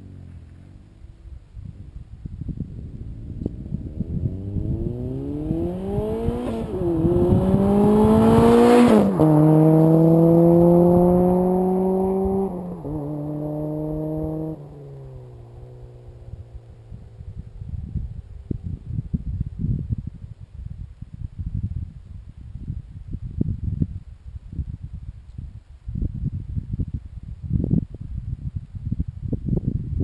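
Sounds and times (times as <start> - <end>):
car engine accelerating hard: 3.1 - 16.3.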